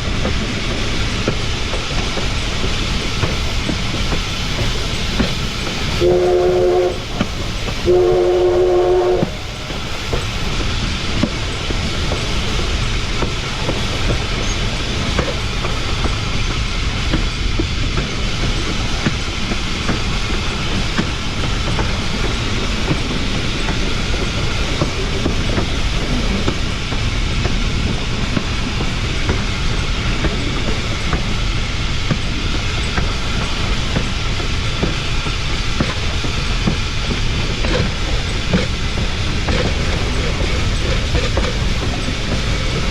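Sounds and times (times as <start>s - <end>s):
train wheels rumbling on rails: 0.0s - 42.9s
steam locomotive whistle: 6.0s - 9.8s.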